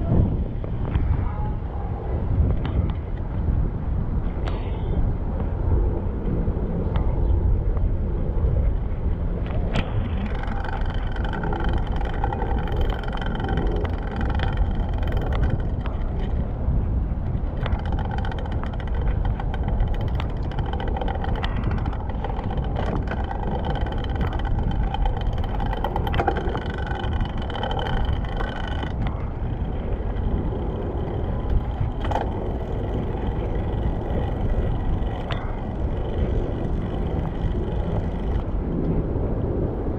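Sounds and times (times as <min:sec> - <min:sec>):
bicycle rolling noise: 0:00.0 - 0:39.9
steady whine: 0:00.0 - 0:39.9
wind rumble: 0:00.0 - 0:39.9
sharp clicks: 0:17.5 - 0:38.9.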